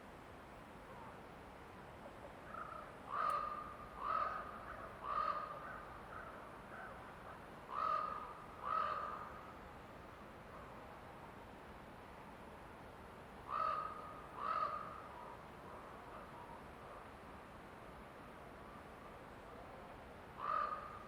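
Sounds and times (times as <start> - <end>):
forest ambience: 0.0 - 21.0
crow cawing: 2.5 - 6.9, 7.7 - 9.4, 13.5 - 15.0, 20.4 - 21.0.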